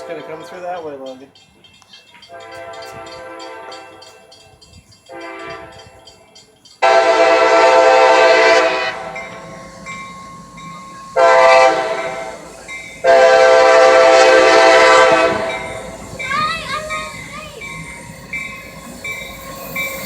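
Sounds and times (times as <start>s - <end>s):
locomotive air horn blasts: 2.4s - 4.1s, 5.1s - 5.9s, 6.8s - 9.8s, 11.1s - 16.2s.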